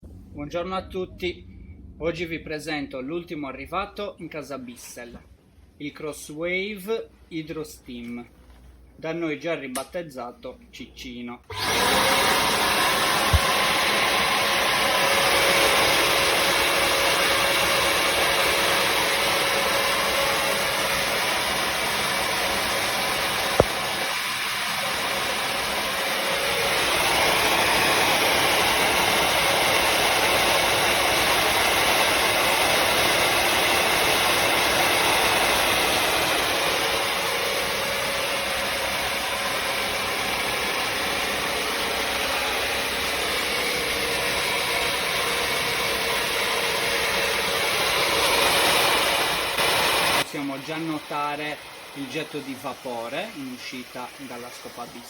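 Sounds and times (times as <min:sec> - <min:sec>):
floor cleaner motor whine: 0:11.5 - 0:55.0.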